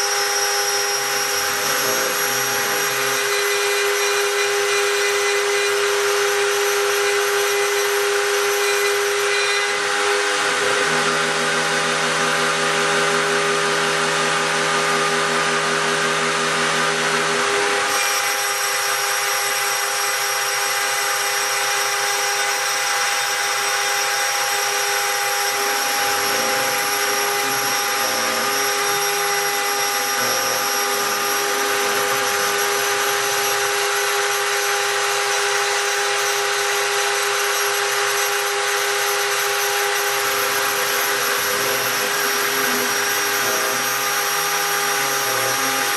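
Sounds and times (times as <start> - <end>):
spindle high whine and cutting hiss: 24.8 - 34.6, 39.4 - 45.9.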